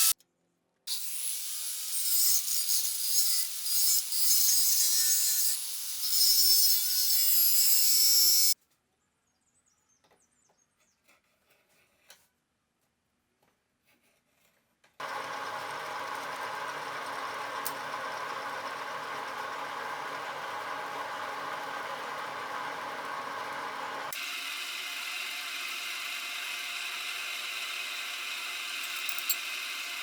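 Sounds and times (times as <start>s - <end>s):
power tool grinding steel: 0.9s - 8.6s, 15.0s - 30.0s
workshop machine humming: 15.0s - 30.0s.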